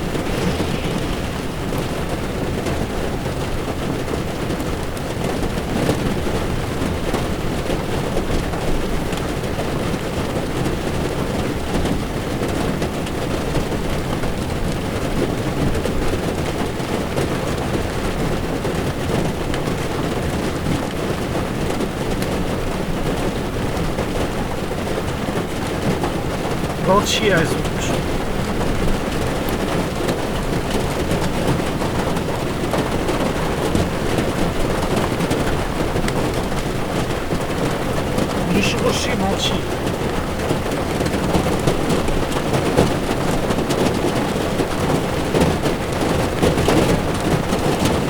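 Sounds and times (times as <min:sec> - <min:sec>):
rain on a windshield: 0:27.8 - 0:48.0.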